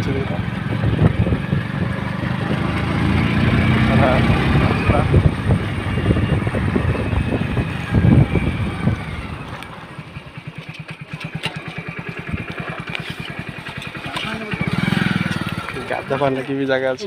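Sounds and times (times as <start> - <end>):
heavy low rumbling: 0.0 - 10.4
small engine running: 0.0 - 17.0.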